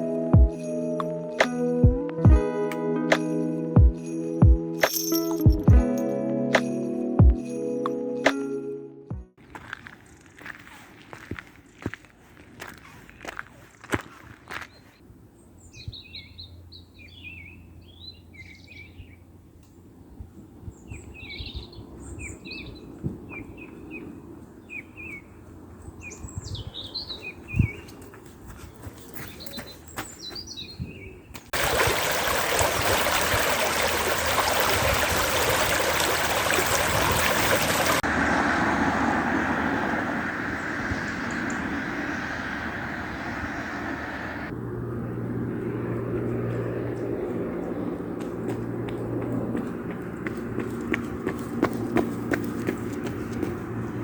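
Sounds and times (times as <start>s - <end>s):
small birds chirping: 12.6s - 19.2s.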